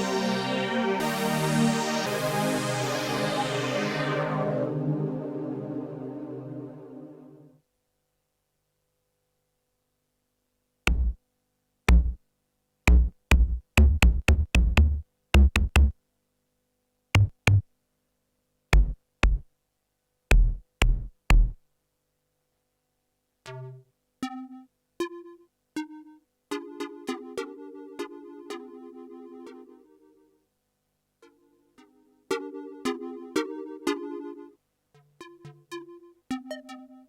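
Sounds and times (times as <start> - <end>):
deep synth kick drum hits: 10.9 - 11.2, 11.9 - 12.2, 12.9 - 15.9, 17.2 - 17.6, 18.8 - 19.4, 20.3 - 21.6
plucked synth notes: 10.9 - 11.2, 11.9 - 12.2, 12.9 - 15.9, 17.2 - 17.6, 18.8 - 19.4, 20.3 - 21.6, 31.8 - 37.0.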